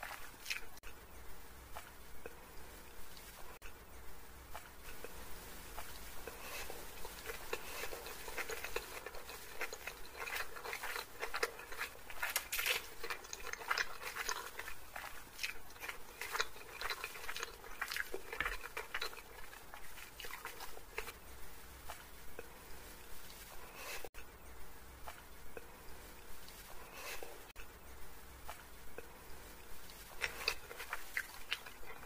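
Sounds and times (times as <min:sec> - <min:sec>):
person chewing noodles: 0:00.0 - 0:00.9, 0:05.8 - 0:21.2, 0:29.9 - 0:32.0.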